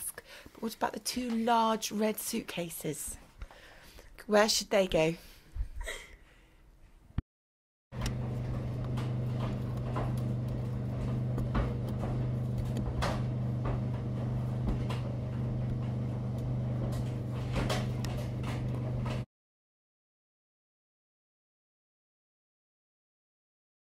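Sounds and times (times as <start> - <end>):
low electrical hum: 8.0 - 19.2.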